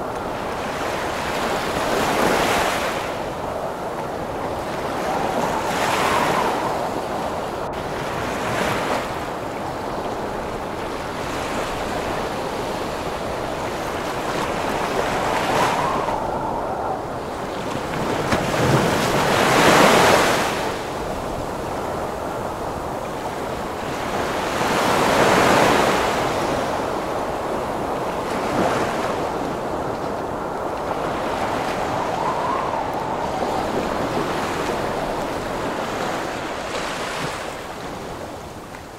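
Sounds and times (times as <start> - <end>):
waves breaking: 0.0 - 38.9
wind whistling: 0.0 - 38.9
wind rushing: 3.4 - 8.1, 14.8 - 18.2, 29.2 - 36.6.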